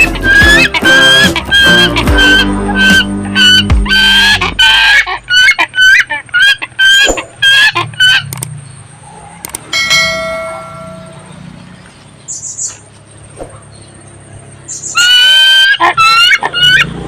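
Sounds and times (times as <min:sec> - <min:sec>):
ringing bell-like tone: 0:09.7 - 0:11.6.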